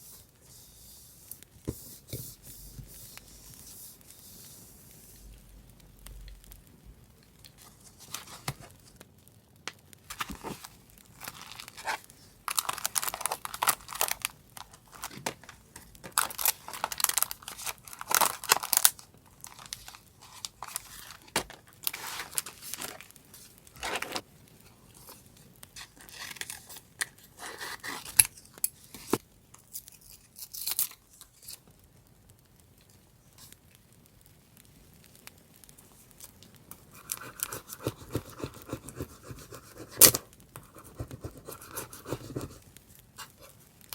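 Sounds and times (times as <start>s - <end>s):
paper tearing and crinkling: 7.6s - 8.8s, 10.1s - 24.2s, 25.8s - 28.3s, 36.9s - 42.6s.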